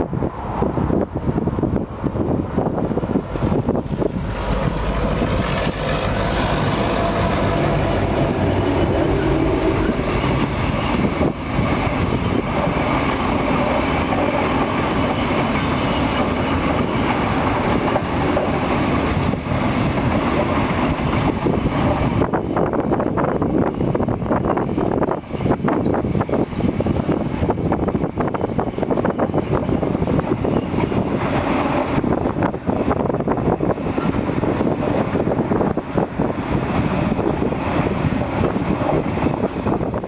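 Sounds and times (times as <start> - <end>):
diesel locomotive passing: 0.0 - 40.0
train wagons rumbling and clattering: 0.0 - 40.0.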